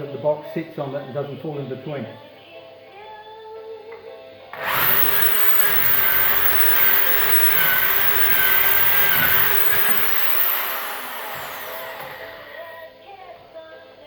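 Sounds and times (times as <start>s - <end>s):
motor winding down whine: 4.6s - 12.8s
power tool running: 4.6s - 12.8s.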